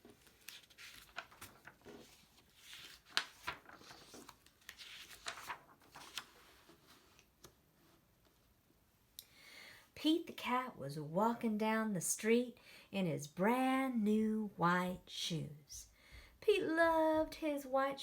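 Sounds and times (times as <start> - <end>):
paper pages rustling: 0.0 - 8.4.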